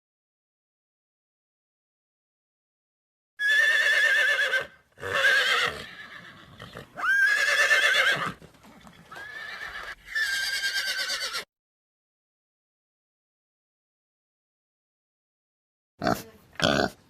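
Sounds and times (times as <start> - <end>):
horse whinnying: 3.4 - 11.5.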